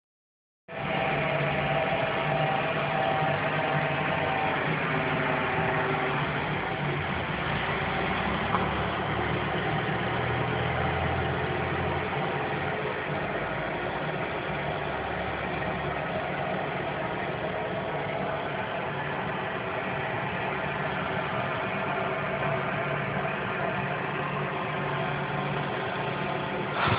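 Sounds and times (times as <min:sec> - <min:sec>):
steady drone of low tones: 0:00.7 - 0:26.9.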